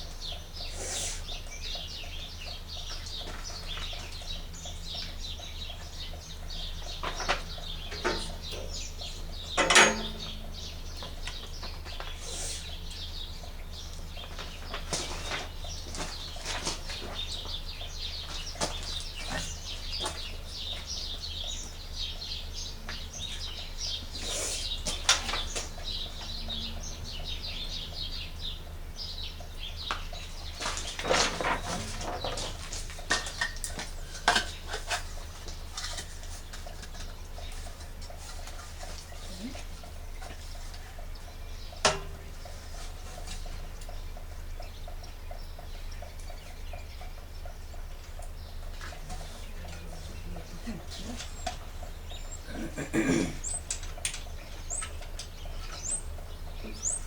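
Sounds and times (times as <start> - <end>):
parts clicking and knocking: 9.5 - 12.0.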